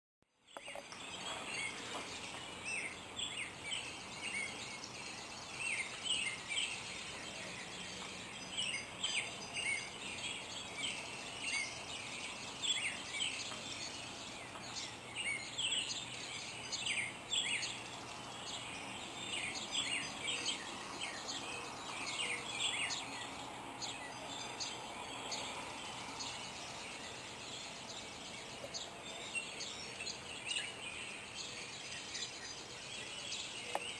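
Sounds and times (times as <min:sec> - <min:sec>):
background hiss: 0:00.3 - 0:33.9
songbirds chirping: 0:00.3 - 0:33.9.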